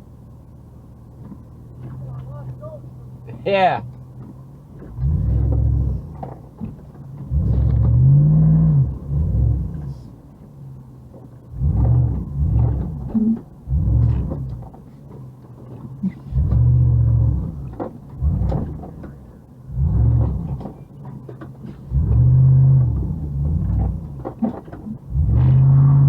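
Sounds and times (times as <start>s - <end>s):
car engine rumbling and revving: 0.0s - 26.0s.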